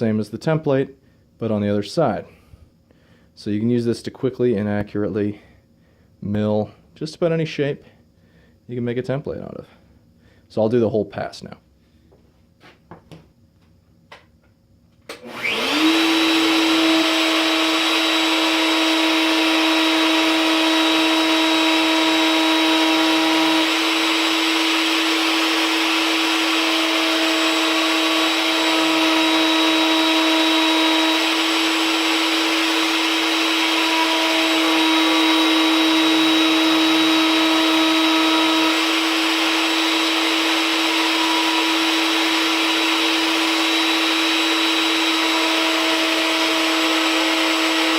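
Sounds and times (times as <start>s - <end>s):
router whining cutting wood: 15.1s - 47.9s.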